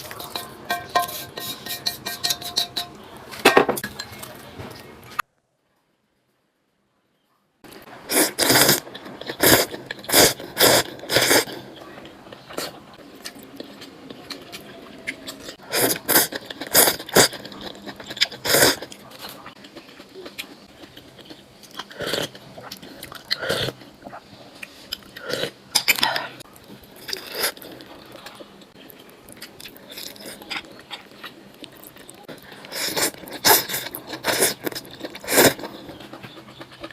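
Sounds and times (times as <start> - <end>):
person chewing: 8.1 - 14.6, 15.3 - 36.9.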